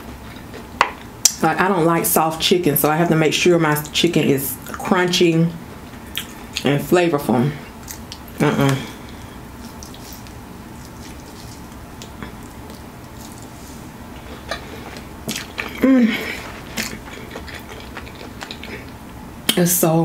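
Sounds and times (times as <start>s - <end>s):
chewing crunchy food: 7.8s - 8.4s, 9.1s - 19.1s
person humming mm: 15.7s - 16.5s.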